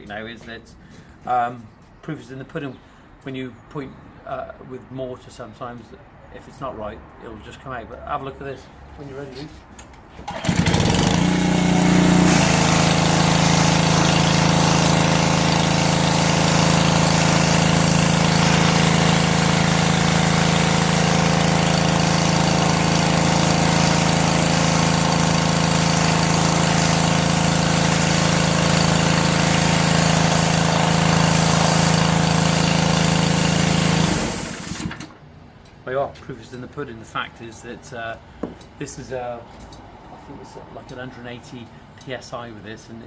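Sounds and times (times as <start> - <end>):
engine hum: 10.1 - 35.1
pressure washer jet hissing: 10.3 - 35.1.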